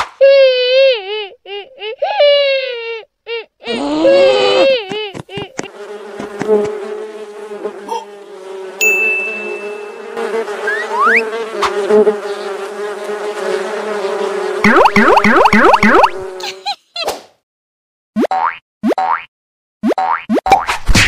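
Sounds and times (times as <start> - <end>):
cartoon bee buzzing: 4.2 - 16.6
bright ding: 8.8 - 10.2
rising whistle: 10.7 - 11.2.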